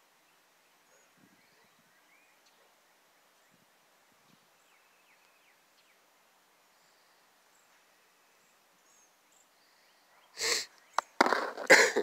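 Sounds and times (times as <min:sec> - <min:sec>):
faint bird chirps: 0:00.2 - 0:11.2.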